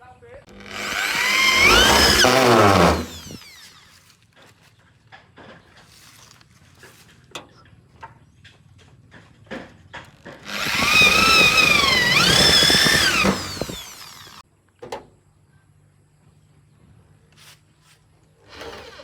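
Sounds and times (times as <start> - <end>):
electric power tool whining: 0.5 - 4.1, 10.2 - 14.4.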